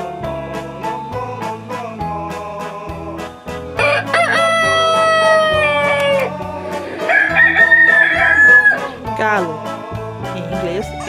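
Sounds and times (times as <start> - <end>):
background music: 0.0 - 11.0
rooster crowing: 3.8 - 9.1.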